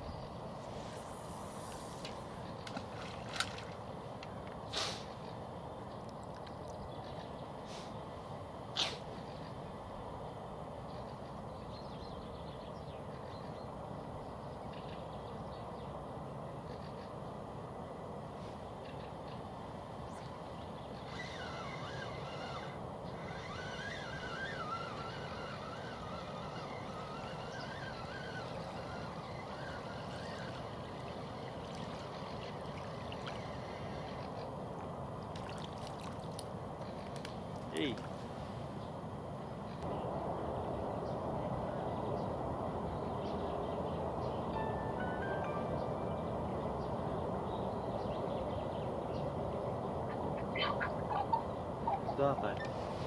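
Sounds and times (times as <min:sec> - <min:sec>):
low rushing background noise: 0:00.0 - 0:06.0, 0:07.4 - 0:53.0
small birds chirping: 0:20.0 - 0:34.5, 0:41.0 - 0:53.0
river water flowing: 0:20.9 - 0:38.7.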